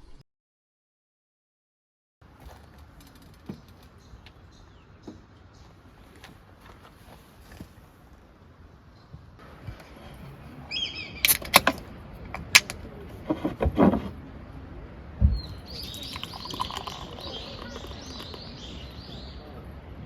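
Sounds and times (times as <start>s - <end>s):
sharp clicks or knocks: 11.3s - 12.8s
small birds chirping: 15.3s - 19.6s.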